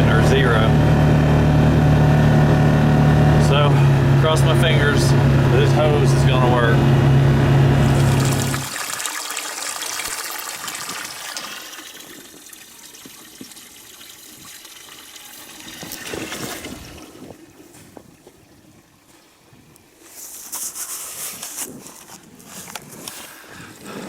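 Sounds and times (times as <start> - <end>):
water rushing from hose: 7.8 - 17.4.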